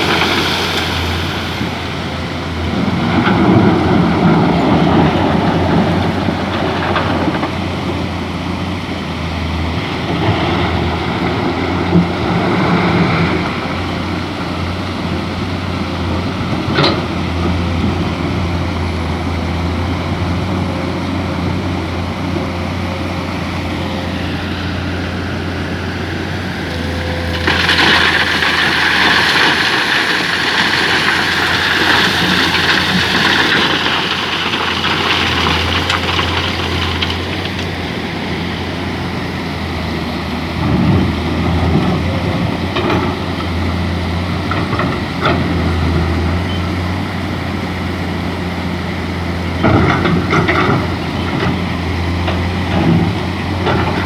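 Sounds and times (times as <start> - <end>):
rushing hiss: 0.0 - 2.2
excavator diesel engine: 0.0 - 54.0.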